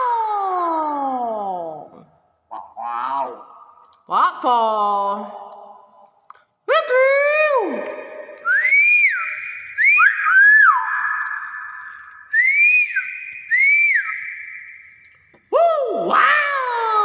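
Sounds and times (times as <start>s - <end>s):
myna whistling: 8.4s - 15.5s.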